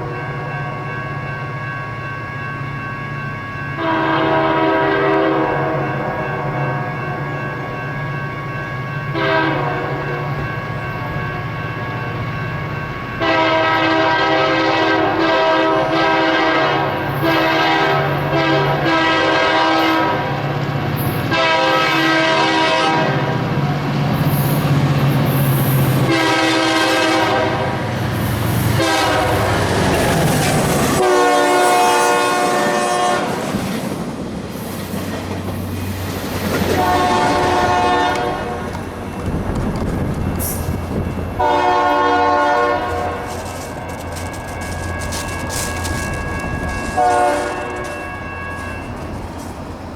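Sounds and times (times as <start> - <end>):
rail clickety-clack: 0.0 - 49.9
locomotive air horn blasts: 3.8 - 5.9, 9.1 - 10.2, 13.2 - 20.4, 21.3 - 23.4, 26.0 - 27.8, 28.6 - 30.2, 30.9 - 33.6, 36.7 - 38.8, 41.4 - 49.1.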